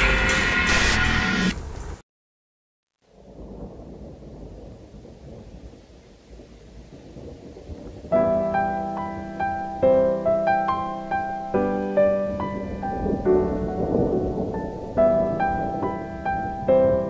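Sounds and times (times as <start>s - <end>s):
rain and thunder rumble: 3.0s - 17.0s
solo piano: 8.0s - 17.0s.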